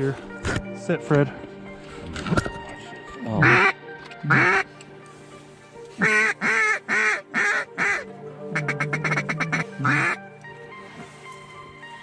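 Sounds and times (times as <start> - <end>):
duck clucking chatter: 3.4 - 3.7, 4.3 - 4.6, 6.0 - 10.2
duck quacking: 3.4 - 4.6, 6.0 - 10.2.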